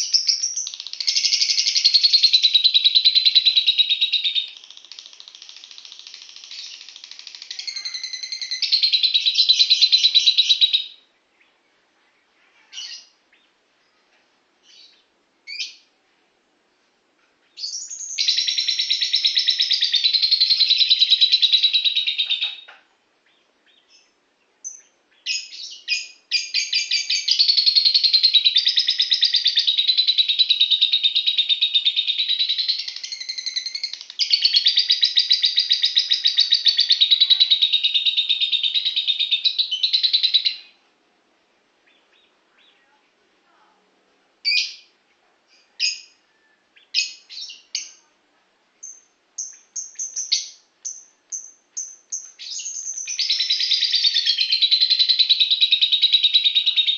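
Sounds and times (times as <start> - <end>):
bird chattering song: 0.0 - 14.0, 17.4 - 40.8, 44.4 - 48.0, 48.8 - 56.9
short bird chirps: 6.5 - 10.6.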